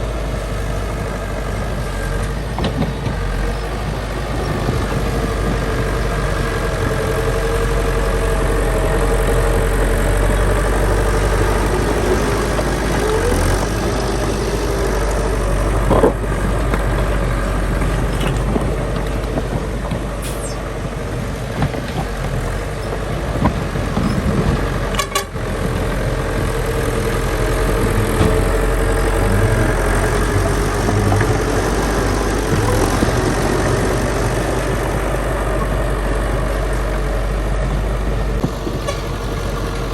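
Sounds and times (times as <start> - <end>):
diesel machinery running: 0.0 - 39.9.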